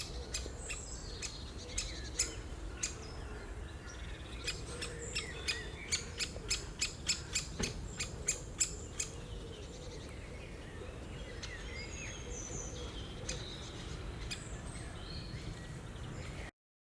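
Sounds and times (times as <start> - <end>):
small birds chirping: 3.9 - 16.5
woodpecker kik calls: 4.4 - 9.2.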